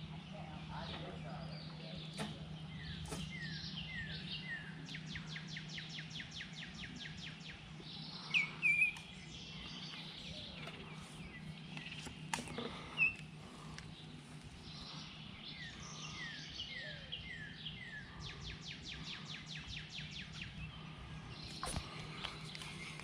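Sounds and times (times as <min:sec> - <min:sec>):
songbirds chirping and trilling: 0:00.0 - 0:23.0
steady low hum: 0:00.0 - 0:23.0.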